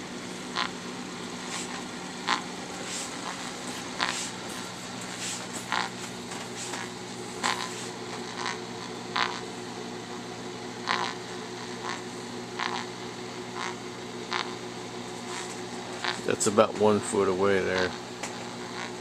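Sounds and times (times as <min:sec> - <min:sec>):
crackling interference bursts: 0:00.0 - 0:16.5, 0:17.6 - 0:19.0
microwave oven humming: 0:00.0 - 0:19.0
radio static hiss: 0:00.0 - 0:19.0.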